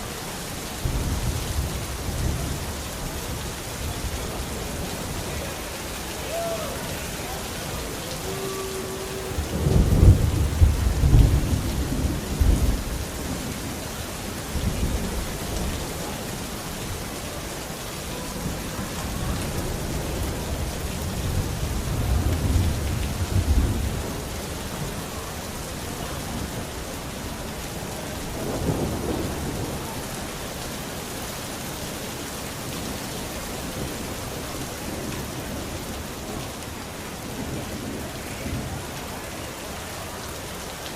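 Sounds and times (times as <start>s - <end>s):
steady rain falling: 0.0s - 40.9s
rolling thunder: 7.7s - 16.1s, 18.4s - 25.0s.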